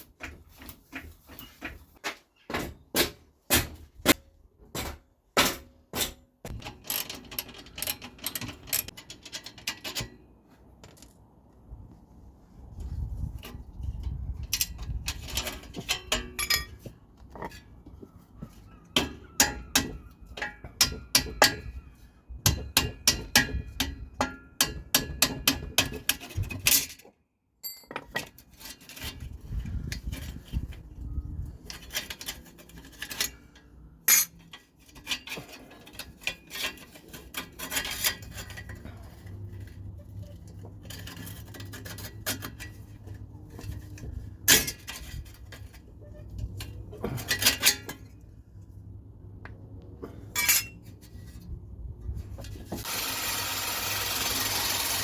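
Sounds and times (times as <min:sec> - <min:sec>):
metal tools clinking on exhaust pipe: 0:13.5 - 0:17.6, 0:19.0 - 0:21.8, 0:22.5 - 0:30.5, 0:31.5 - 0:48.4, 0:50.0 - 0:51.4.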